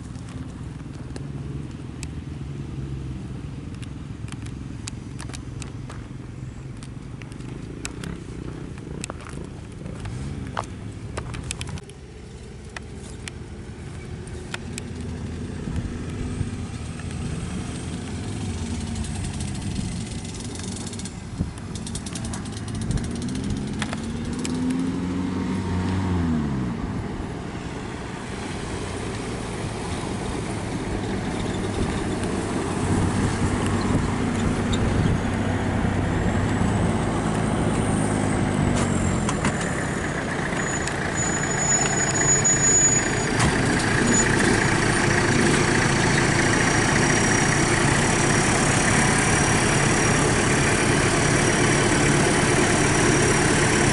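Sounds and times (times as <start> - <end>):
motorbike engine revving: 14.4 - 26.8.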